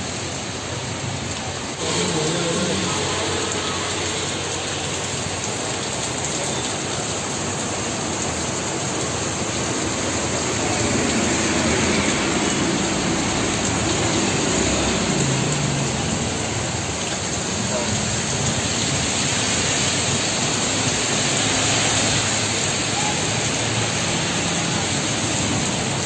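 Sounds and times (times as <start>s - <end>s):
heavy rain splashing on street: 0.0s - 26.0s.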